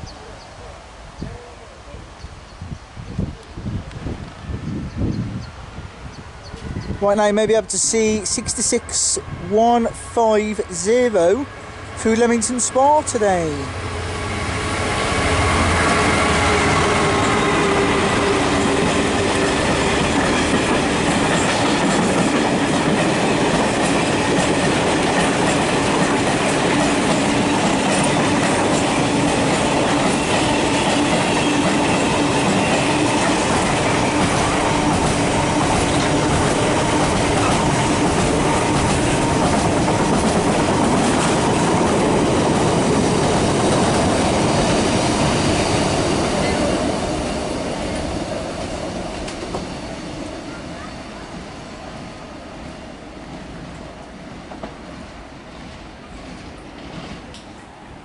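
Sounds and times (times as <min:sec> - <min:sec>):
diesel locomotive engine passing: 0:03.7 - 0:58.0
freight wagons rumbling past: 0:07.0 - 0:52.4.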